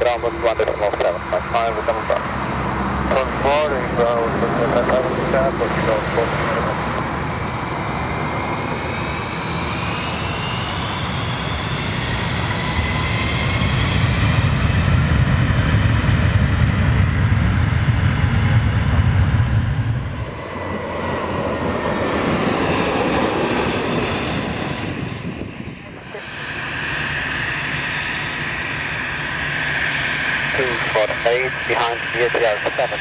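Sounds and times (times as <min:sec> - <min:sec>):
jet engine whine: 0:00.0 - 0:33.0
jet engines rumbling: 0:00.0 - 0:33.0.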